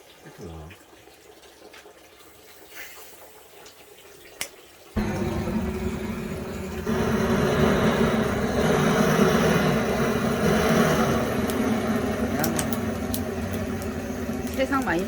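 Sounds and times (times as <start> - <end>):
electric air blower running: 5.0 - 15.0.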